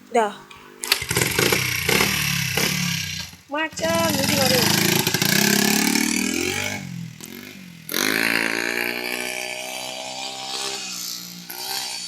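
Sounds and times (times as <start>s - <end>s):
small motorcycle engine revving: 0.8s - 12.0s.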